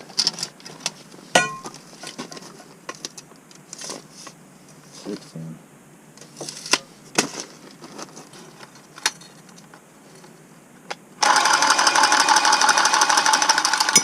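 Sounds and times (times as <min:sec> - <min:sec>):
cordless power tool buzzing: 0:11.2 - 0:14.0.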